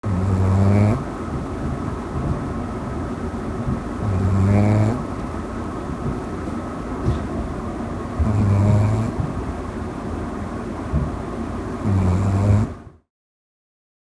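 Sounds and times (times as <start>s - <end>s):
puppy snoring: 0.0s - 1.1s, 3.7s - 5.2s, 8.2s - 9.4s, 11.8s - 13.0s
steady background noise: 0.0s - 13.0s.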